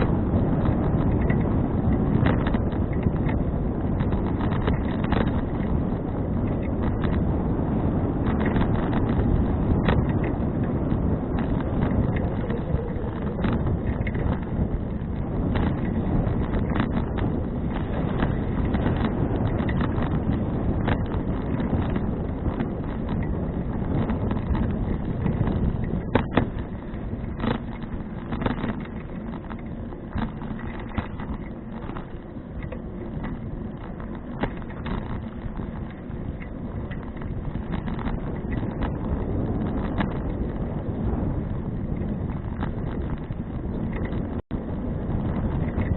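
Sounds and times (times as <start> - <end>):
bicycle clicks and knocks: 0.0 - 45.9
bicycle tyres rolling: 0.0 - 45.9
wind on camera microphone: 0.0 - 45.9.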